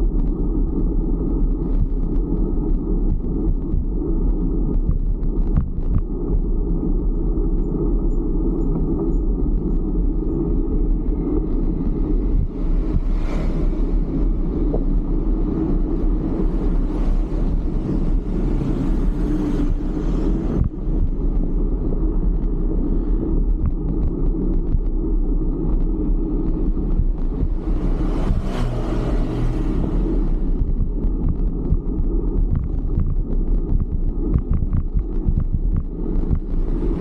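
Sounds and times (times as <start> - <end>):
wind and road noise rumble: 0.0 - 37.0
vehicles passing: 10.4 - 34.4, 35.8 - 37.0.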